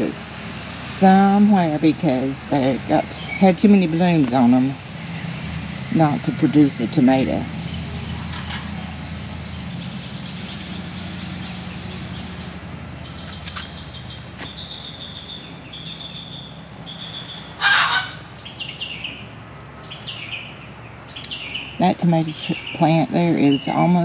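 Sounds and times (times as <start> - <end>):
low steady hum: 0.0 - 24.0
harsh bird call: 7.6 - 19.3
small bird high chirps: 7.7 - 21.8.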